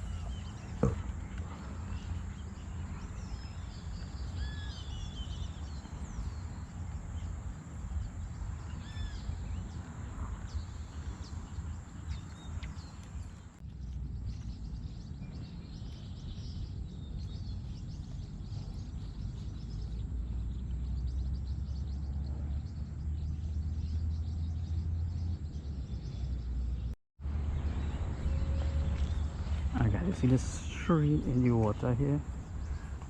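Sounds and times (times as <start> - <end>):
steady low rumble: 25.6 - 33.0.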